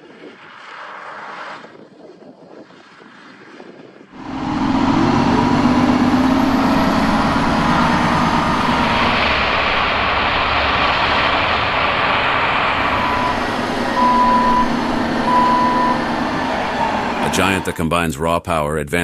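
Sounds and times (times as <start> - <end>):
tractor diesel engine running: 4.2 - 18.2.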